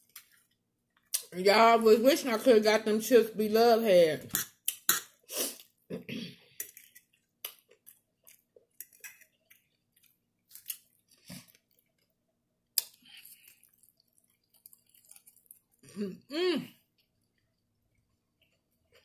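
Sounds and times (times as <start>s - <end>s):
chewing crunchy chips: 6.6s - 16.0s.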